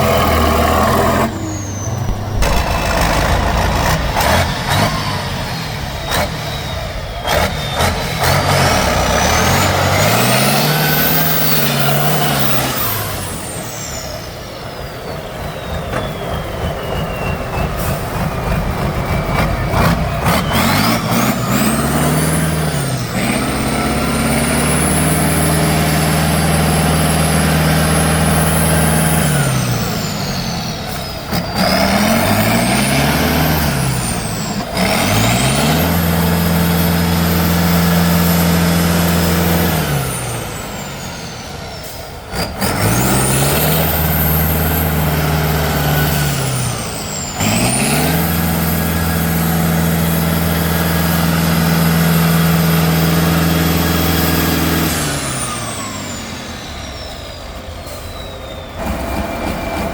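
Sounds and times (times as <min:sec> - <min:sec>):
truck engine revving: 0:00.0 - 0:59.9
sharp knocks: 0:02.1 - 0:04.9.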